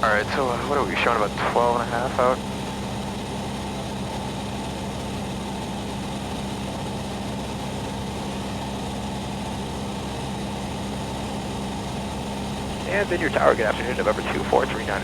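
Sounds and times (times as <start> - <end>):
airplane engine and propeller droning: 0.0 - 15.0
steady low tone: 11.9 - 15.0.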